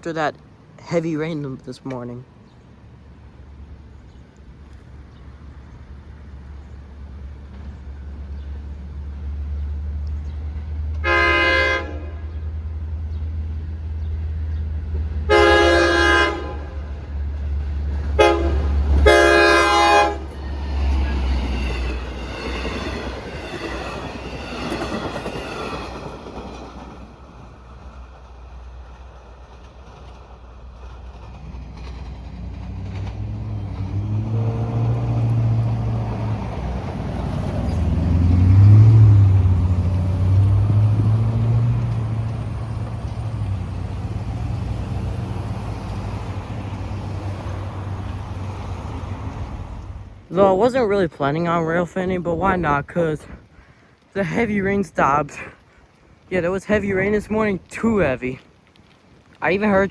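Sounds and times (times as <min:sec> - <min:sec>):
diesel engine rumbling: 0:04.5 - 0:59.9
train cars rattling: 0:06.9 - 0:59.9
train horn: 0:11.0 - 0:12.5, 0:15.2 - 0:17.0, 0:18.1 - 0:23.0.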